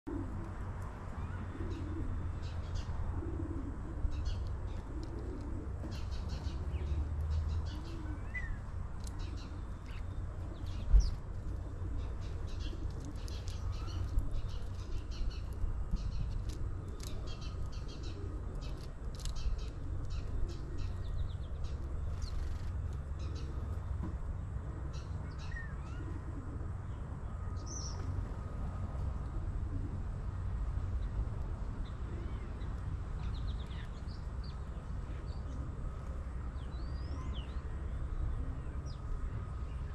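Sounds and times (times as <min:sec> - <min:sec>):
small birds chirping: 0:04.1 - 0:24.0, 0:31.8 - 0:39.9.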